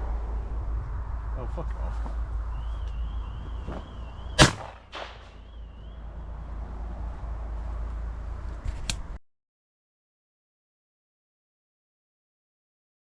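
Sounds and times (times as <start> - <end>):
wind rumble on microphone: 0.0 - 9.2
shotgun shots: 4.3 - 5.5.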